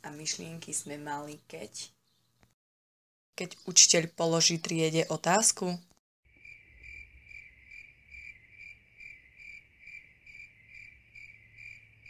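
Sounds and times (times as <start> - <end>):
cricket chirping: 6.3 - 12.0.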